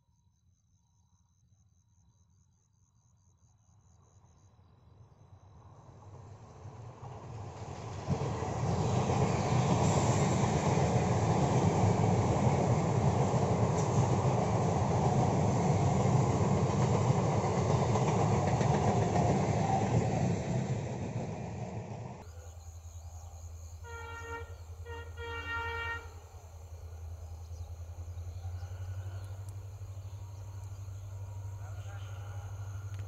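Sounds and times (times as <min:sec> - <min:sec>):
train wheels rumbling on rail: 0:05.6 - 0:22.3
distant locomotive horn blasts: 0:23.8 - 0:26.4, 0:28.4 - 0:33.0.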